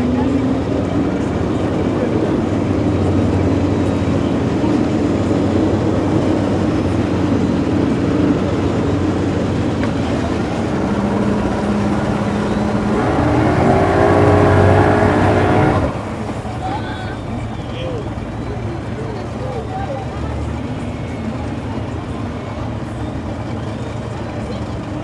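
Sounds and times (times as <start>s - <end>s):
motor engine running and revving: 0.0s - 19.0s.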